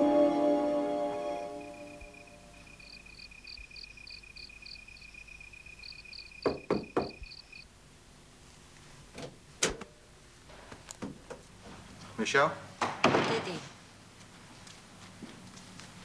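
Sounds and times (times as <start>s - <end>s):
crickets chirping: 0.0s - 7.8s
knocks on a door: 6.4s - 7.2s.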